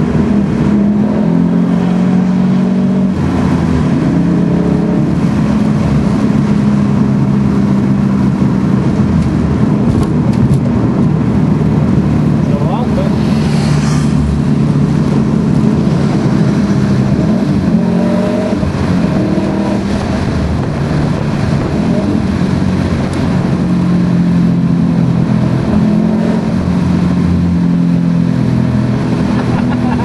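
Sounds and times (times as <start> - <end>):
car engine running hard: 0.0 - 30.0
road noise: 0.0 - 30.0
wind noise: 0.0 - 30.0.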